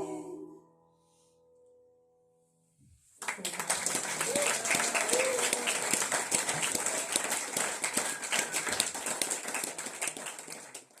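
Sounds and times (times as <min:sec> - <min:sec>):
audience clapping: 0:03.2 - 0:11.0.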